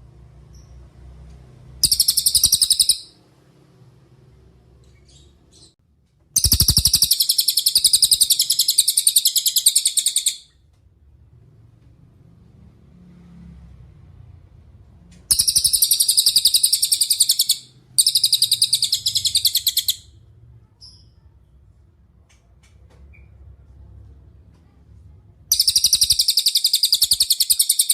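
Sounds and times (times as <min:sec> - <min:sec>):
bird singing high trills: 0:01.8 - 0:03.2, 0:06.4 - 0:10.5, 0:15.3 - 0:20.1, 0:25.5 - 0:27.9.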